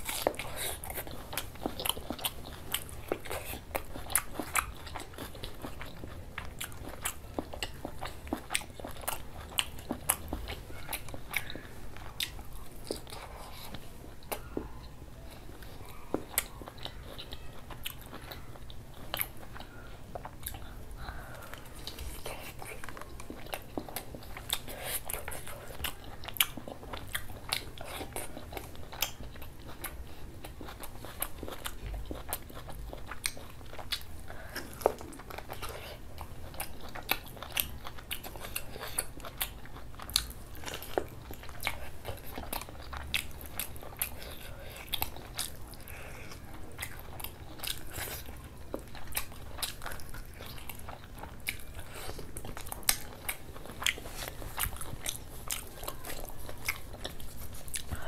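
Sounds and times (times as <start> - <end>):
close chewing and biting: 0.0 - 58.0
food crunches: 21.5 - 58.0.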